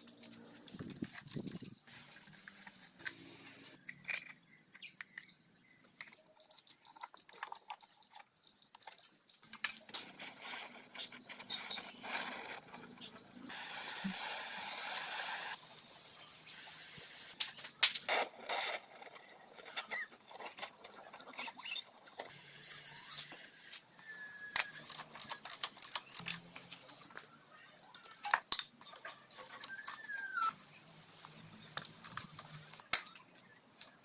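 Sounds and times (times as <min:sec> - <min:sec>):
squeaky chirps: 0:00.0 - 0:15.6, 0:19.2 - 0:25.1, 0:27.4 - 0:30.8.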